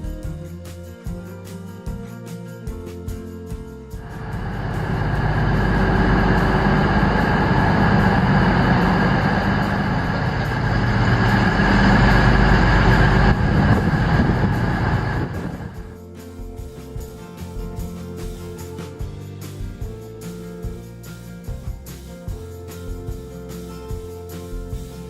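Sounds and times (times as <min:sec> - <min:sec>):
faint hum: 0:04.0 - 0:16.0
train running rumble: 0:04.0 - 0:16.0.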